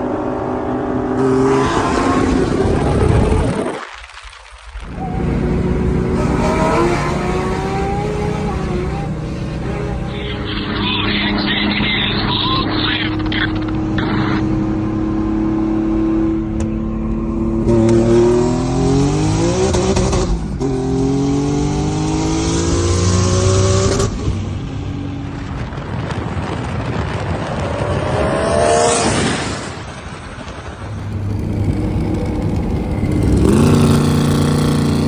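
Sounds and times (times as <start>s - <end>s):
car engine revving hard: 6.0s - 10.0s, 30.8s - 35.0s.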